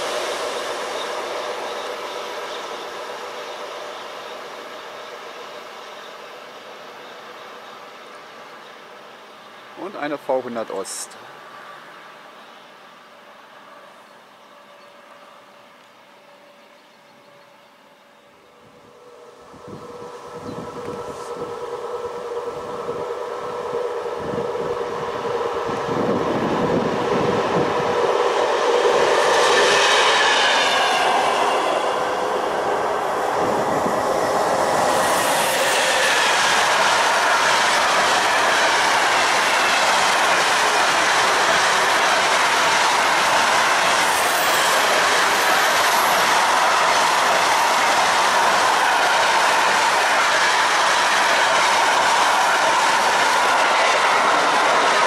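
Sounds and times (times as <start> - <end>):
diesel locomotive engine: 0.0 - 55.0
clickety-clack of train wheels: 33.6 - 55.0.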